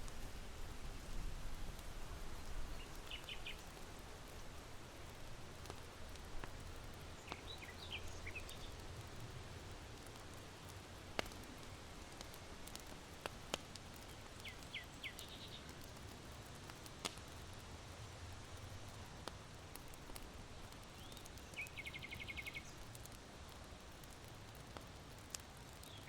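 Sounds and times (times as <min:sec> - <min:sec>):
charcoal fire crackling: 0:00.0 - 0:26.0
small bird chirping: 0:02.6 - 0:03.7, 0:07.2 - 0:08.8, 0:14.4 - 0:15.7, 0:20.9 - 0:22.8.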